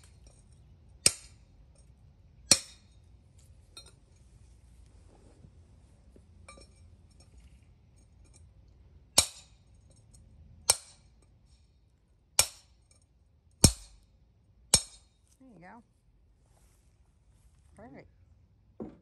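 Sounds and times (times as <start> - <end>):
hammer striking brick: 9.2 - 9.6, 12.4 - 12.8, 13.6 - 14.0.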